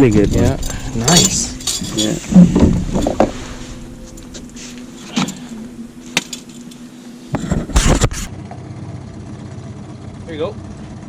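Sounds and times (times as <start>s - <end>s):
loud clattering knocks: 0.0s - 8.3s
sharp knocks: 0.0s - 8.3s
boat motor running: 0.0s - 11.0s.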